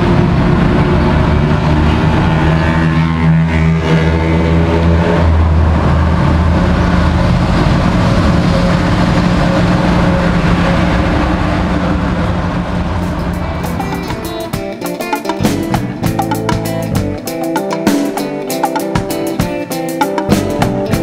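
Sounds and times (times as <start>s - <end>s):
high-speed train passing: 0.0s - 21.0s.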